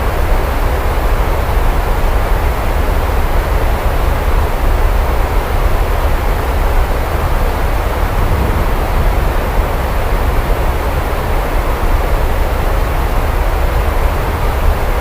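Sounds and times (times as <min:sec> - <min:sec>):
steady rain hiss: 0:07.0 - 0:14.0
deep low rumble: 0:07.5 - 0:12.1.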